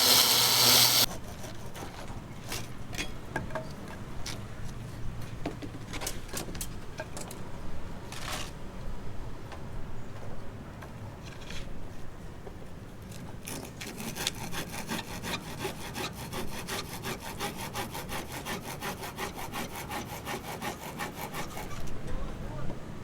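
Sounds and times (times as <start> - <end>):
hand tool strokes: 0.0 - 1.1.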